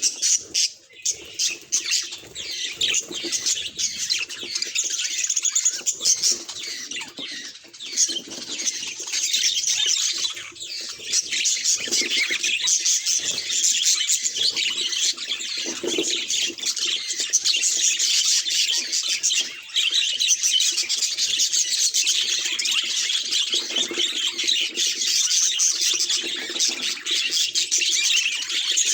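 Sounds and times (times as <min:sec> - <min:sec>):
budgerigars chattering and chirping: 0:00.0 - 0:28.9.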